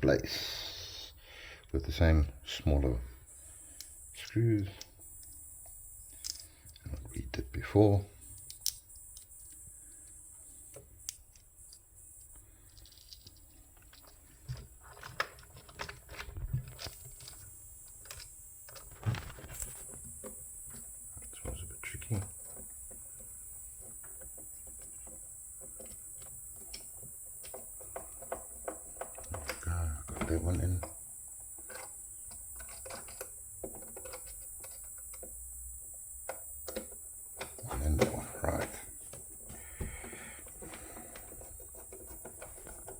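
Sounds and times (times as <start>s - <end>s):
small screws clicking and tapping: 6.1s - 6.9s, 8.4s - 9.6s, 10.7s - 19.0s, 22.4s - 29.7s, 30.5s - 35.4s.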